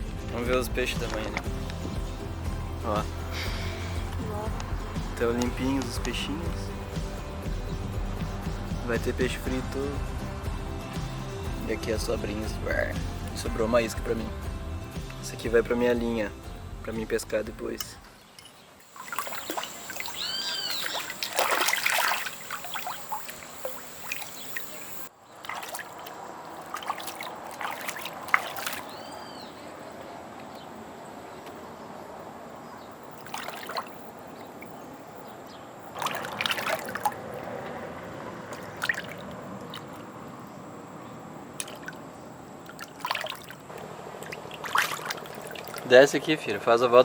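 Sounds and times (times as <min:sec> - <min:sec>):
splashes and knocks: 0:00.4 - 0:02.1, 0:18.9 - 0:24.7, 0:25.4 - 0:29.0, 0:33.2 - 0:34.7, 0:35.9 - 0:40.1, 0:41.6 - 0:46.3
water trickling: 0:17.8 - 0:29.6, 0:33.0 - 0:47.0.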